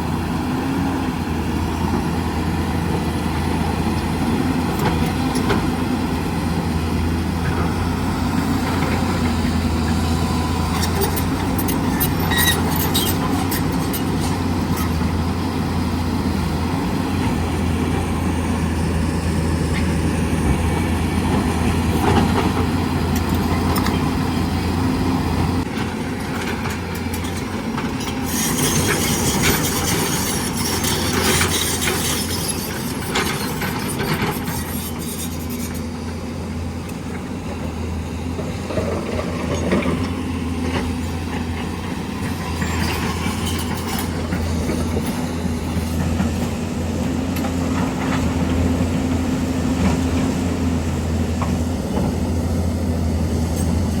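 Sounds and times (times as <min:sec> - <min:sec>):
excavator diesel engine running: 0:00.0 - 0:54.0
metallic clanking and scraping: 0:26.3 - 0:36.0, 0:42.2 - 0:46.6.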